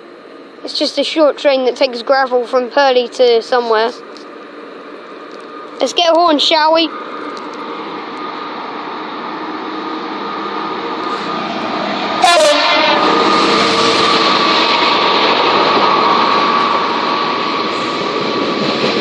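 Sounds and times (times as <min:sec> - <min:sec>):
diesel locomotive engine: 0:00.0 - 0:19.0
two-tone train horn blast: 0:12.2 - 0:14.4.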